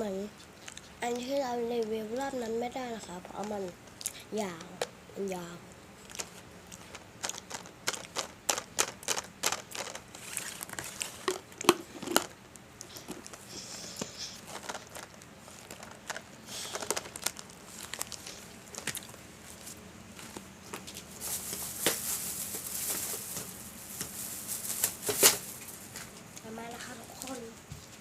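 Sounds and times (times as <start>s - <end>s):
plastic packaging crinkling: 6.0s - 26.2s.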